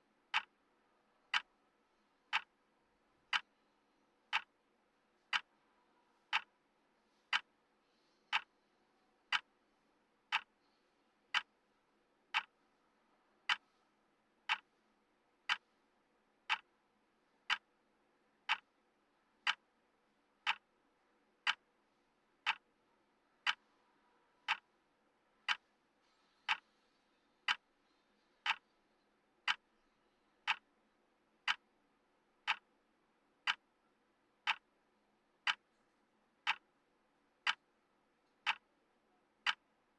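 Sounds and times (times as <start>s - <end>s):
clock ticking: 0.2s - 0.6s, 1.2s - 1.6s, 2.3s - 2.6s, 3.3s - 4.6s, 5.3s - 5.5s, 6.2s - 6.6s, 7.3s - 7.6s, 8.3s - 8.5s, 9.2s - 9.6s, 10.3s - 11.6s, 12.3s - 12.7s, 13.4s - 13.7s, 14.4s - 14.8s, 15.4s - 15.8s, 16.4s - 16.8s, 17.4s - 17.8s, 18.4s - 18.8s, 19.4s - 20.7s, 21.4s - 21.7s, 22.4s - 22.8s, 23.4s - 23.7s, 24.4s - 24.8s, 25.4s - 25.7s, 26.4s - 26.8s, 27.4s - 27.8s, 28.4s - 28.8s, 29.4s - 29.8s, 30.4s - 30.8s, 31.4s - 31.8s, 32.4s - 32.8s, 33.4s - 33.8s, 34.4s - 34.8s, 35.4s - 35.8s, 36.4s - 36.8s, 37.4s - 38.8s, 39.4s - 39.9s.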